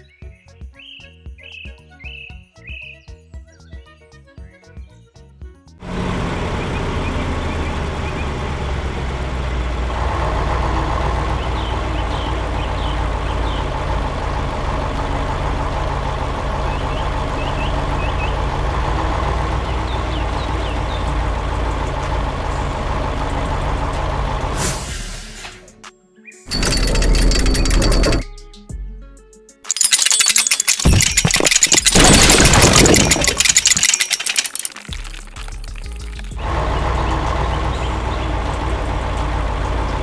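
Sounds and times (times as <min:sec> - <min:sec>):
heavy vehicle engine running: 0:05.8 - 0:25.7, 0:26.5 - 0:28.2, 0:30.0 - 0:40.0.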